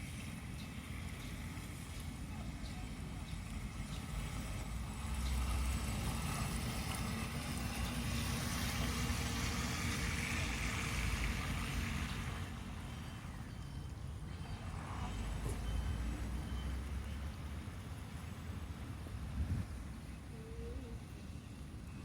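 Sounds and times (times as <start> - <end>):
wind buffeting microphone: 18.4 - 20.0.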